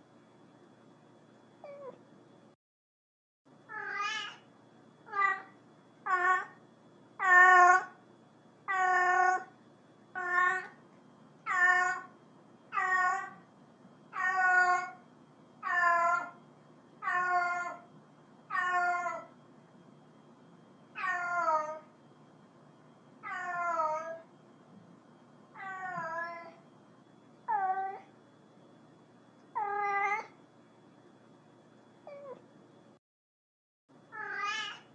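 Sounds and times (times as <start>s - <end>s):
cat meowing: 1.6s - 2.0s, 3.7s - 4.4s, 5.1s - 6.6s, 7.2s - 8.0s, 8.7s - 9.5s, 10.2s - 10.8s, 11.5s - 12.1s, 12.8s - 13.4s, 14.2s - 15.0s, 15.6s - 16.4s, 17.0s - 17.9s, 18.5s - 19.3s, 21.0s - 21.8s, 23.2s - 24.3s, 25.6s - 26.6s, 27.5s - 28.1s, 29.6s - 30.3s, 32.1s - 32.4s, 34.1s - 34.9s.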